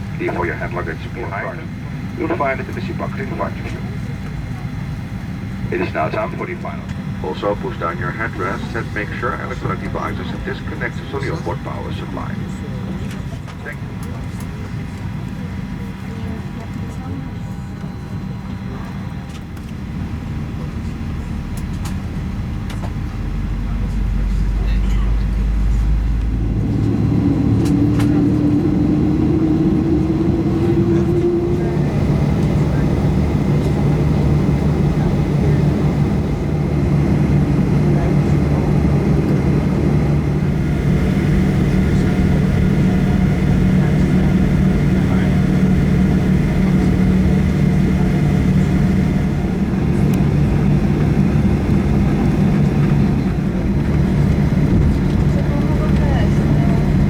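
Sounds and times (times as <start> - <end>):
jet engines humming: 0.0 - 57.0
air rushing through cabin: 25.0 - 57.0.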